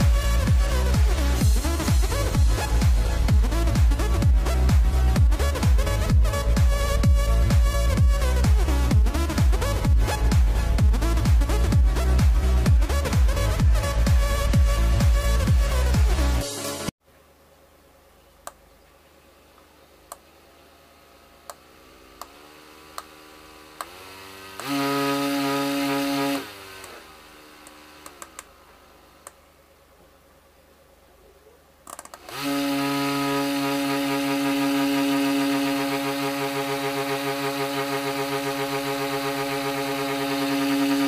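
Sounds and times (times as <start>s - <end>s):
small fan motor whirring: 20.0s - 29.4s, 31.9s - 41.0s
sharp clicks: 27.6s - 28.5s, 31.8s - 32.4s.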